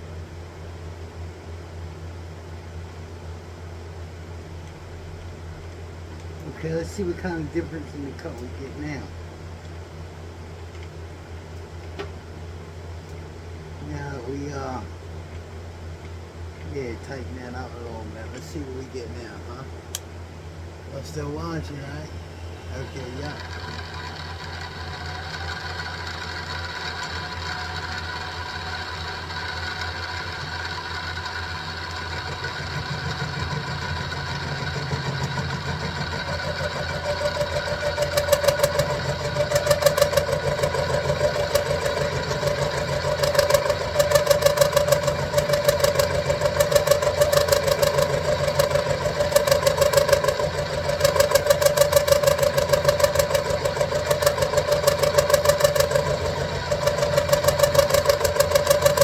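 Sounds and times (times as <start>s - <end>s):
milling machine motor whine: 6.4s - 9.3s, 21.0s - 59.0s
end mill cutting steel: 22.7s - 59.0s.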